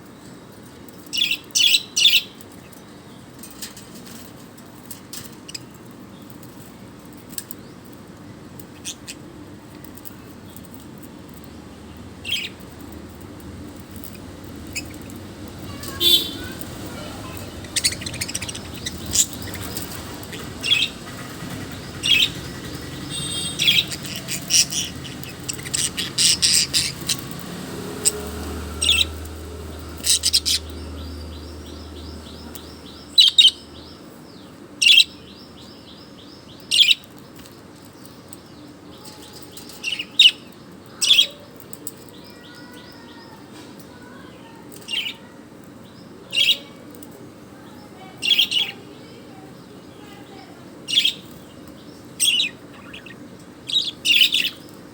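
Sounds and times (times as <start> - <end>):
rapid bird chatter: 0.5 - 54.9
bird chirping: 9.9 - 38.2, 50.9 - 54.9.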